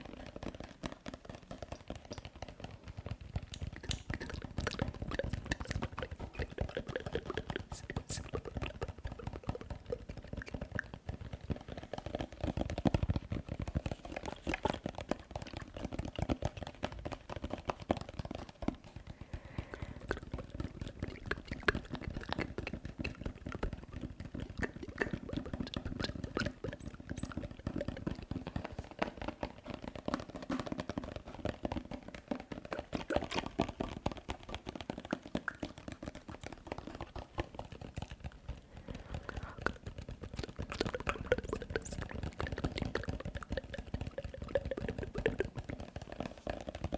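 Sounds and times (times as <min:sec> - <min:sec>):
asmr tapping: 0:00.0 - 0:15.9, 0:31.9 - 0:46.9
wet mouth sounds: 0:03.3 - 0:16.6, 0:18.8 - 0:29.5, 0:32.2 - 0:46.9.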